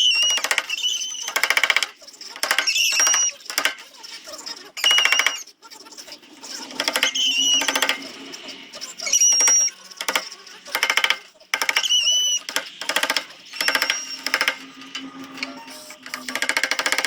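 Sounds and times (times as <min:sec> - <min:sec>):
high squeal of sander: 0:06.8 - 0:09.9.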